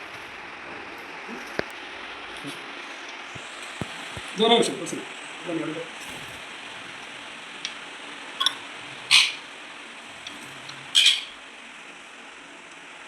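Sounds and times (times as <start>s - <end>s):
steady background hiss: 0.0s - 13.0s
parrot squawking: 8.4s - 11.5s.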